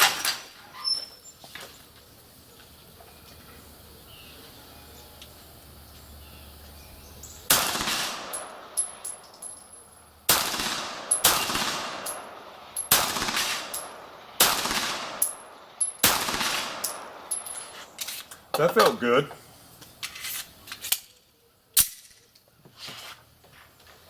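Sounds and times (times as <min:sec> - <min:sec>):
pistol shots: 0:07.4 - 0:17.8.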